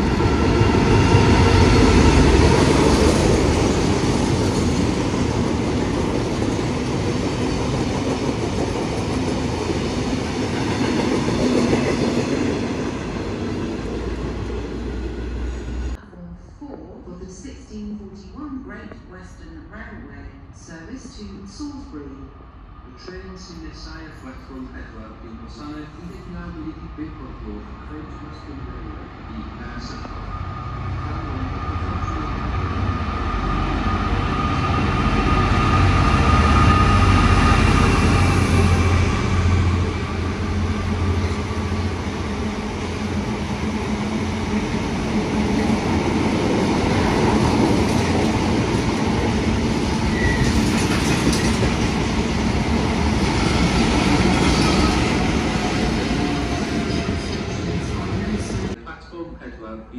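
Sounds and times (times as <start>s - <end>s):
diesel locomotive engine drone: 0.0s - 16.3s, 20.4s - 59.3s
train wheels rolling: 33.2s - 58.8s.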